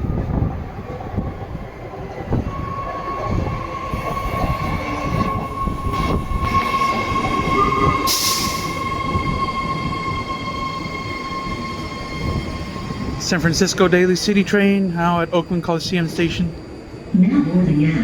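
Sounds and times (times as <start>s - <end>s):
train wheels rumbling on rails: 0.0s - 17.2s
high whine: 2.1s - 14.6s.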